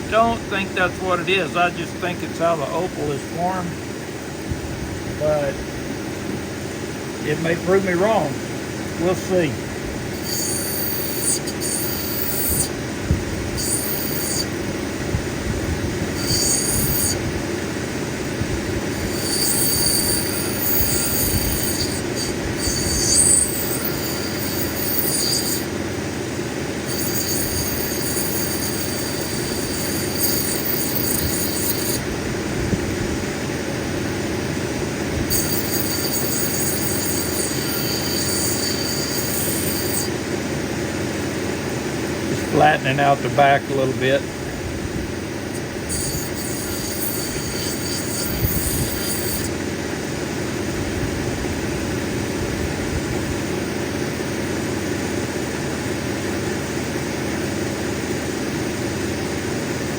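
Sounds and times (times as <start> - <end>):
cabbing machine running: 0.0 - 59.3
stone grinding hiss: 10.1 - 12.8, 13.5 - 14.7, 16.0 - 17.2, 18.8 - 25.8, 26.8 - 32.1, 35.3 - 40.1, 45.5 - 49.6.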